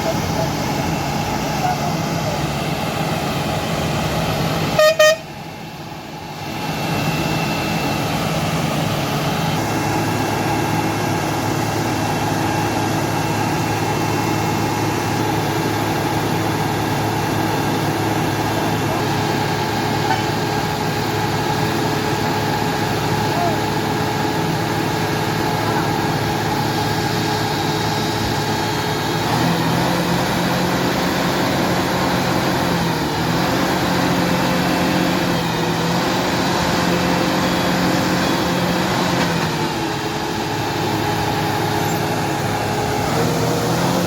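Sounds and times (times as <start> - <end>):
heavy vehicle engines running: 0.0 - 44.0
double horn honk: 4.7 - 5.4.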